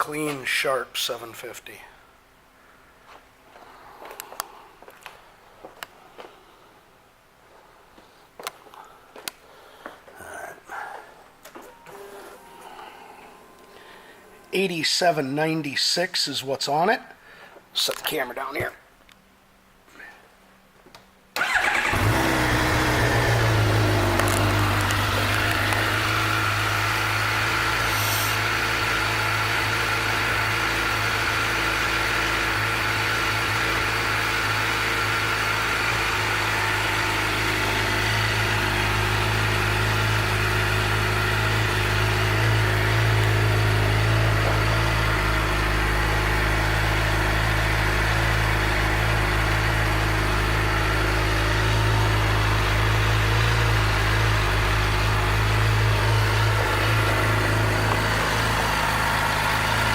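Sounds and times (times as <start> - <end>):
motorcycle engine idling: 21.4 - 59.9.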